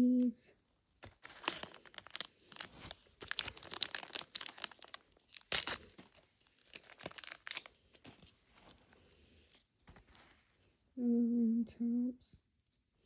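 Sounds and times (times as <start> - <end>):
plastic packaging crinkling and tearing: 1.0 - 8.8.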